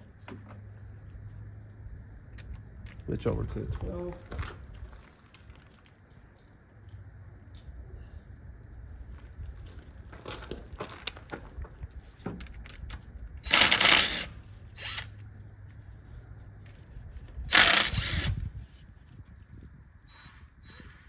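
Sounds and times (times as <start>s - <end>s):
ratchet wrench clicking: 17.5s - 18.4s.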